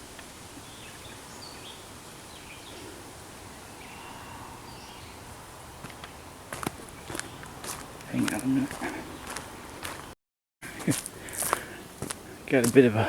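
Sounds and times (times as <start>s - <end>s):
steady woodland hiss: 0.0s - 10.1s, 10.8s - 13.0s
faint bird chirps: 3.6s - 5.3s.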